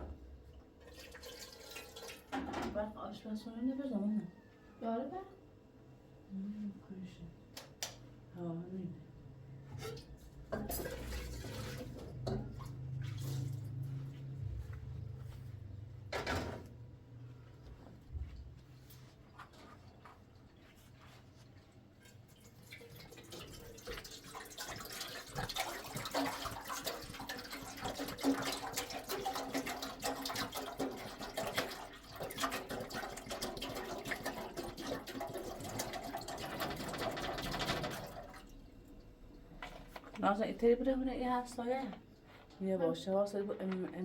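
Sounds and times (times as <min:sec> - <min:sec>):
water splashing into a container: 0:00.9 - 0:02.4, 0:10.7 - 0:13.8, 0:22.3 - 0:38.6.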